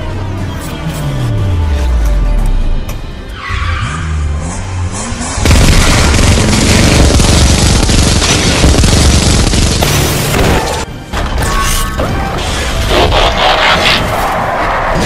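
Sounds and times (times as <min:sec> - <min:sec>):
background music: 0:00.0 - 0:05.4, 0:08.3 - 0:15.0
explosion rumbling blast: 0:05.4 - 0:09.8.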